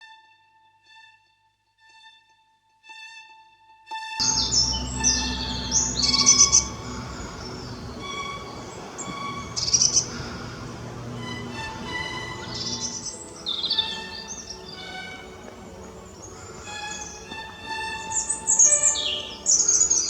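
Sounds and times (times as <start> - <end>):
background music with sustained tones: 0.0 - 20.0
small birds chirping: 4.2 - 20.0.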